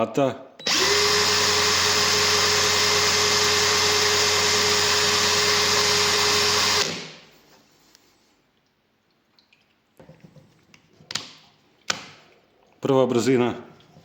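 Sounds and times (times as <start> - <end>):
cordless drill motor running: 0.6 - 7.2.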